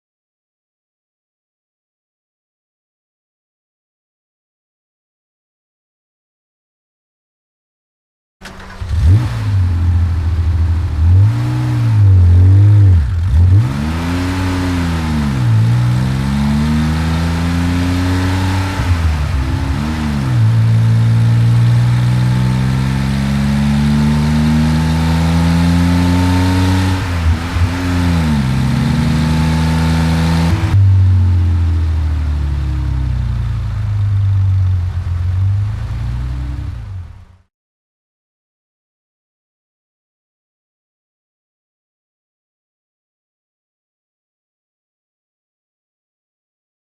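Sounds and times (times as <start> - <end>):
car engine revving and idling: 8.4 - 37.5.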